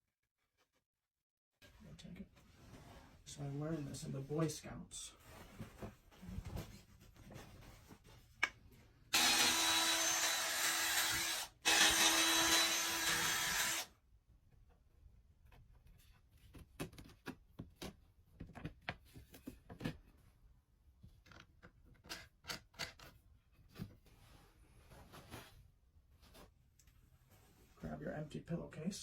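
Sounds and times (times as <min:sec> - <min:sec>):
power tool motor whirring: 0:09.1 - 0:13.9.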